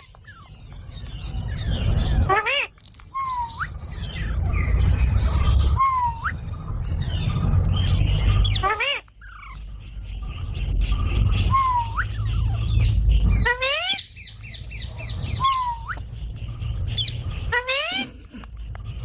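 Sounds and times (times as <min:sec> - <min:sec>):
parrot whistling: 0:05.4 - 0:06.7, 0:11.4 - 0:16.1
parrot squawking: 0:08.2 - 0:09.6, 0:10.9 - 0:16.1, 0:16.8 - 0:18.5.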